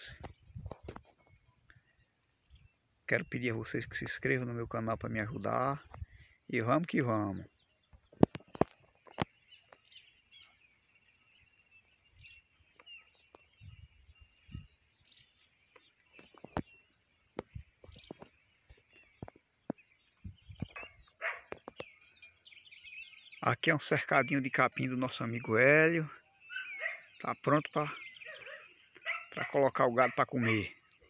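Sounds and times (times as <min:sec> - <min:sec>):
birds chirping faintly: 0:00.0 - 0:31.0.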